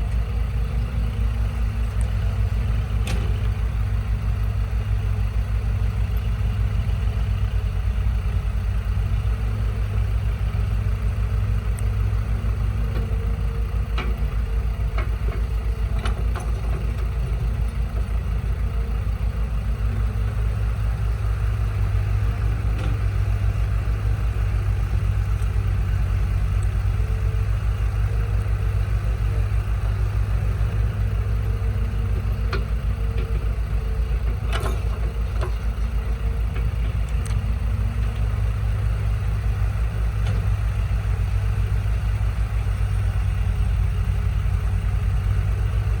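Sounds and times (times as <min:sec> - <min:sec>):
truck engine idling: 0:00.0 - 0:46.0
faint clicks: 0:34.2 - 0:38.3.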